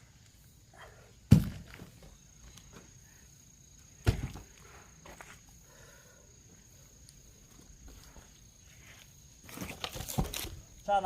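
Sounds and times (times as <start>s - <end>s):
axe striking log: 1.3s - 1.8s, 4.0s - 4.4s.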